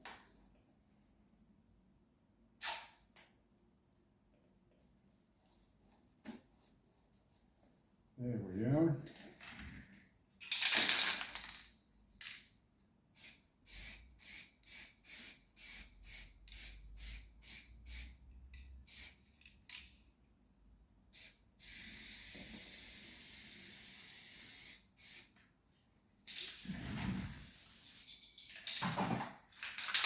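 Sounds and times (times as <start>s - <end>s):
spray paint hissing: 13.2s - 18.2s, 18.9s - 19.2s, 21.1s - 25.3s, 26.3s - 28.2s
spray can rattling: 26.3s - 28.8s.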